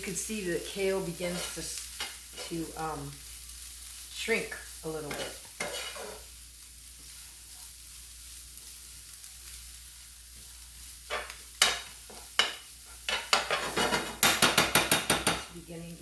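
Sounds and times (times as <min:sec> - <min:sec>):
kale sizzling in a pan: 0:00.0 - 0:16.0
utensil knocking against pan: 0:12.4 - 0:15.5.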